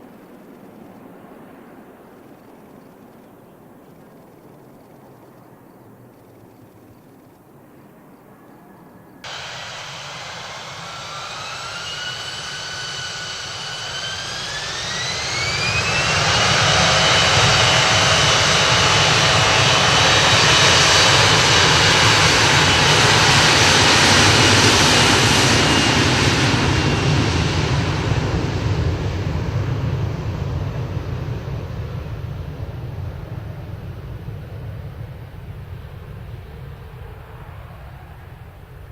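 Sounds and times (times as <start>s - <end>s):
jet engines spooling up: 9.2s - 38.9s.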